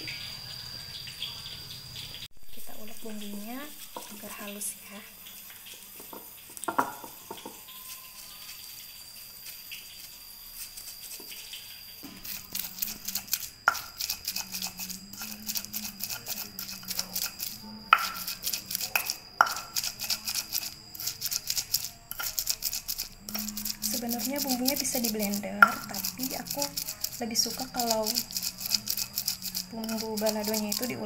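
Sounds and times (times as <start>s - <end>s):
stone knocking on stone: 6.0s - 7.6s, 17.9s - 18.3s, 19.0s - 19.7s
stone pestle grinding in mortar: 12.0s - 31.0s.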